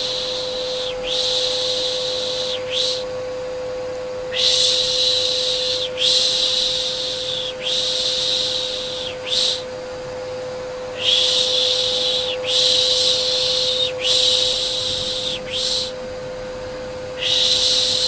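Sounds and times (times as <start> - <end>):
vacuum cleaner hum: 0.0 - 18.0
person shushing: 4.3 - 9.7, 11.0 - 16.0, 17.2 - 18.0.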